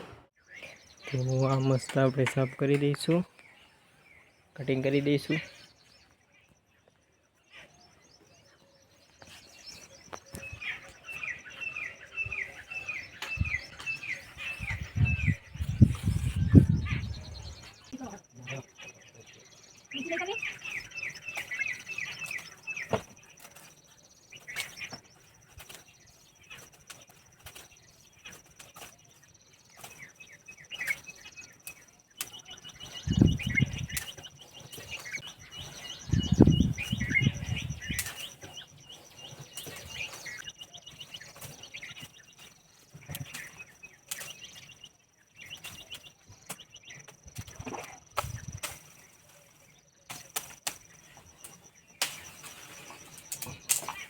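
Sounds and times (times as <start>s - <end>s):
birds chirping: 0.0s - 54.0s
shears cutting branches: 20.6s - 44.8s, 45.4s - 54.0s.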